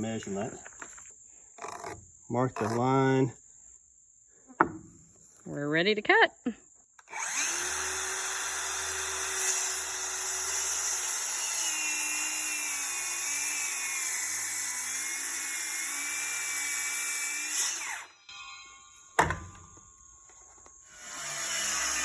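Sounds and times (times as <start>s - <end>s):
circular saw cutting wood: 1.6s - 3.3s, 7.0s - 22.0s.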